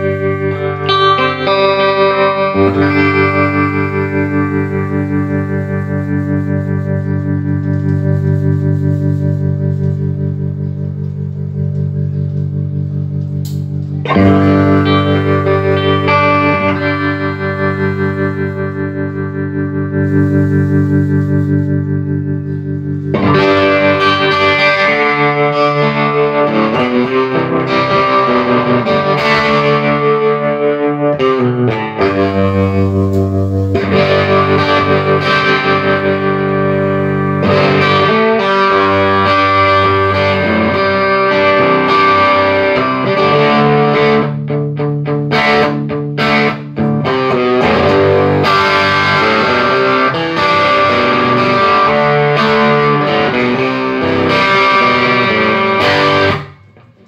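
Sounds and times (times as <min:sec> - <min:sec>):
overdriven electric guitar chords: 0:00.0 - 0:57.0.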